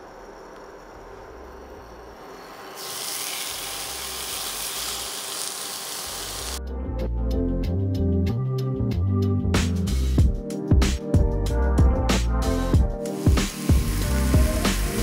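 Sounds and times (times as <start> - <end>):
chicken sizzling in frying pan: 2.7 - 6.6, 13.1 - 15.0
background music with steady beat: 6.6 - 15.0.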